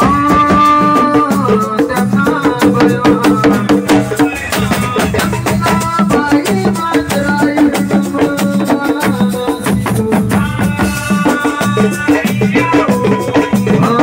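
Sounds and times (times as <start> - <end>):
fast drumming and percussion: 0.0 - 14.0.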